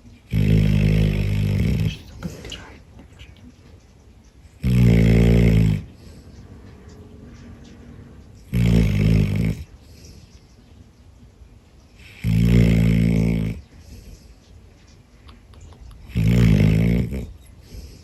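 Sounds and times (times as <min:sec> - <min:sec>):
dog snoring: 0:00.0 - 0:02.8, 0:04.5 - 0:10.3, 0:12.0 - 0:14.2, 0:16.0 - 0:18.0.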